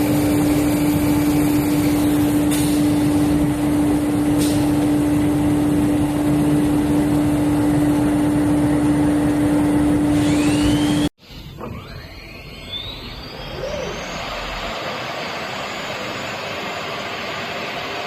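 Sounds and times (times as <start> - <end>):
cnc router running: 4.9 - 18.0
faint rising whine: 9.5 - 18.0.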